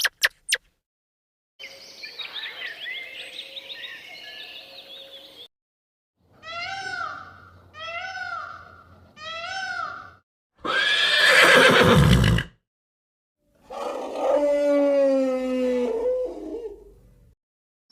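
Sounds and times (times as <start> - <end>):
bird chirps: 0.0 - 0.7, 1.6 - 5.5
horse whinnying: 10.6 - 12.6.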